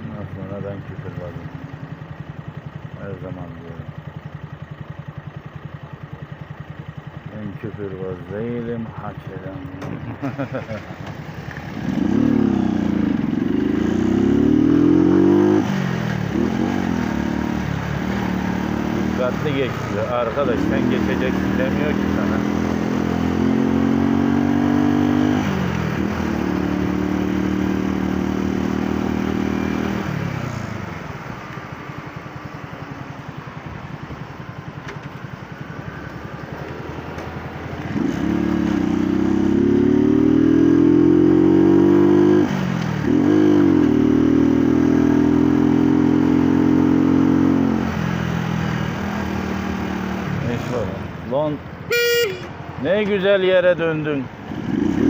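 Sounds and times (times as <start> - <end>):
motorcycle engine revving: 6.5 - 31.2, 36.2 - 55.0.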